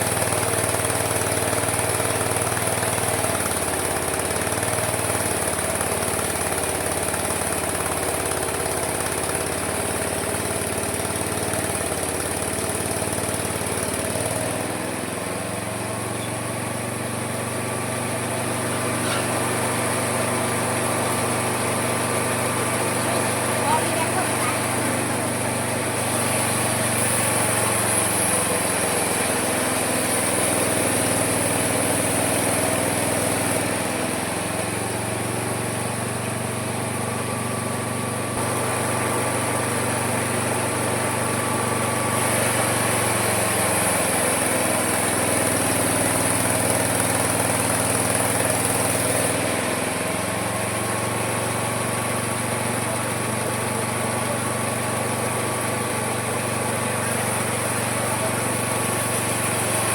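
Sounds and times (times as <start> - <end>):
sawmill motor drone: 0.0 - 59.9
blade hissing through wood: 18.4 - 36.3, 38.3 - 59.9.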